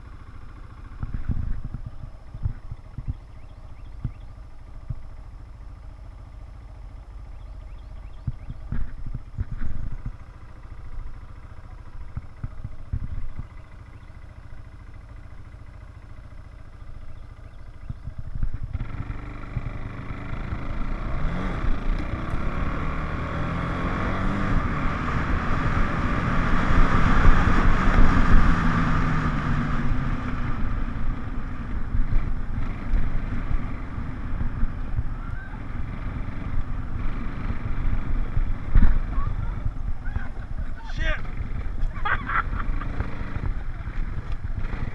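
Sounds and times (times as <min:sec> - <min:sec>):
atv engine: 0:00.0 - 0:44.9
wind rumble on microphone: 0:01.0 - 0:05.2, 0:07.6 - 0:10.4, 0:12.1 - 0:13.6, 0:17.8 - 0:44.9.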